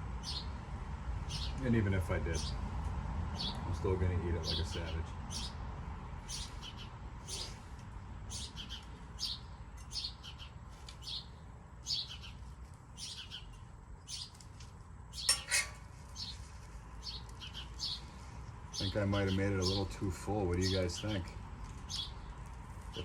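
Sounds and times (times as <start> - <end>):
small birds chirping: 0.0 - 0.6, 1.2 - 23.0.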